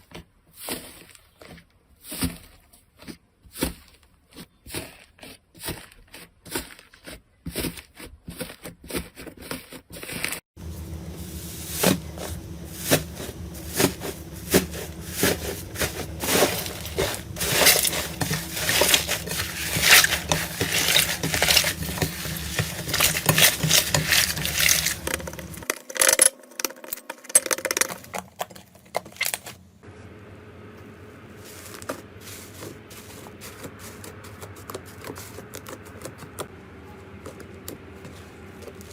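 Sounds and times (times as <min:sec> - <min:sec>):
steady low hum: 0:10.6 - 0:25.6, 0:29.6 - 0:38.9.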